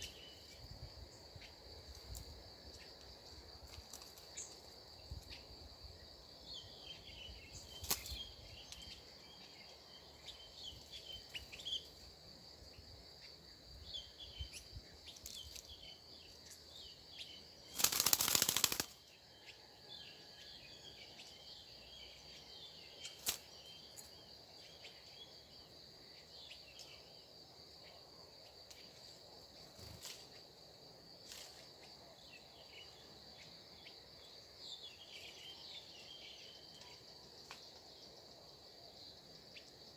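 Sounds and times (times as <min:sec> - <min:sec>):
high-pitched insect drone: 0:17.7 - 0:19.6.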